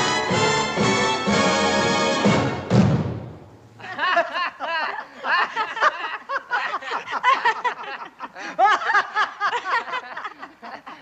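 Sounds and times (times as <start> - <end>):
people laughing together: 3.8 - 11.0.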